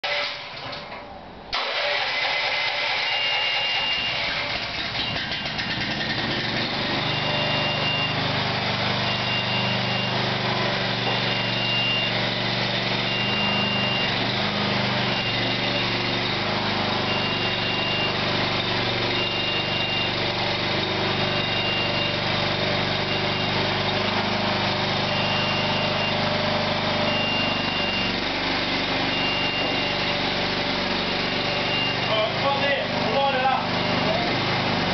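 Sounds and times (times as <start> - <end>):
tracked lift engine running: 0.0 - 34.9
high warning beep: 3.0 - 4.3, 7.0 - 8.2, 9.0 - 10.3, 10.9 - 12.2, 13.0 - 14.2, 15.1 - 16.1, 17.0 - 20.2, 21.0 - 22.3, 22.9 - 23.8, 24.9 - 28.2, 29.0 - 30.3, 31.0 - 32.8.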